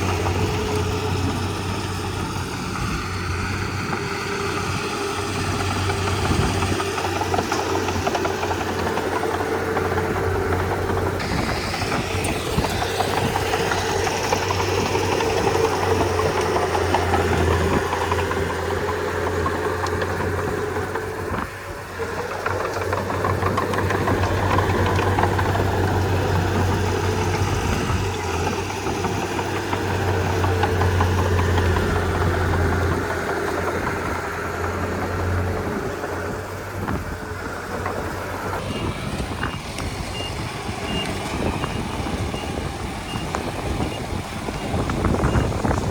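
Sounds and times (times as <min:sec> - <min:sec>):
bulldozer diesel engine running: 0:00.0 - 0:45.9.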